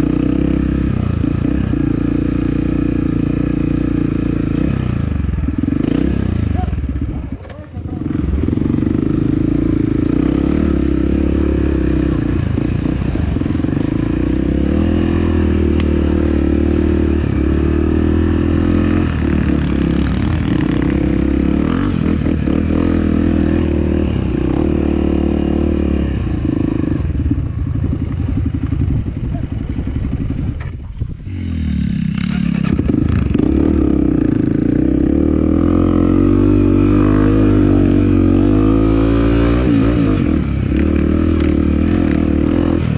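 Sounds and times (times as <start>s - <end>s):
motorcycle engine running: 0.0s - 42.9s
clatter from rough ride: 40.0s - 42.9s.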